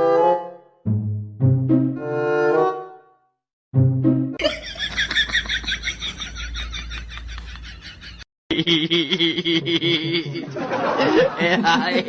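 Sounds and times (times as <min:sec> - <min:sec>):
person's voice: 0:11.2 - 0:12.0.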